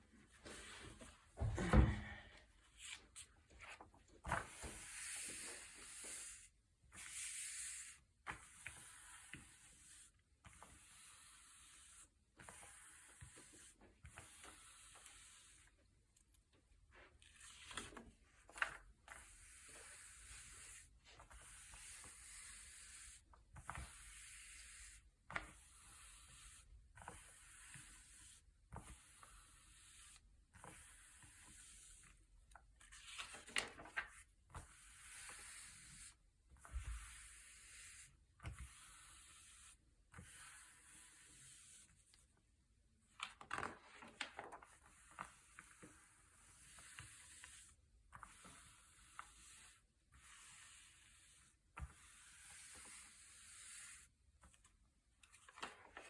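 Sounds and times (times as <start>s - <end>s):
paper pages turning: 2.8s - 5.5s, 32.8s - 34.2s, 43.1s - 45.3s.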